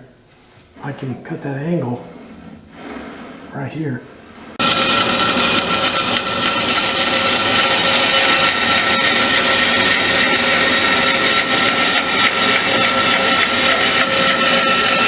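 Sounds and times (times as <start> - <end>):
electric saw cutting plywood: 4.6 - 15.0.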